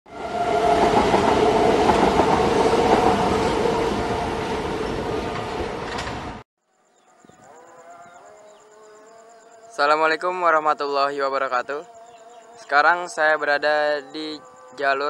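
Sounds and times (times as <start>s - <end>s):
train running past: 0.1s - 6.4s.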